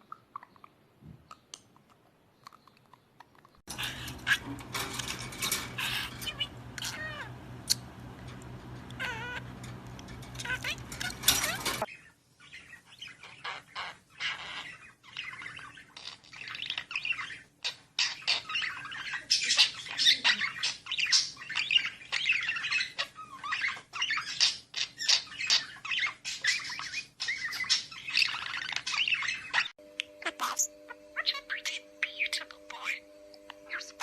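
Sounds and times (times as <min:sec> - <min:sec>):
pet bird chattering: 0:03.7 - 0:11.9, 0:26.7 - 0:34.0.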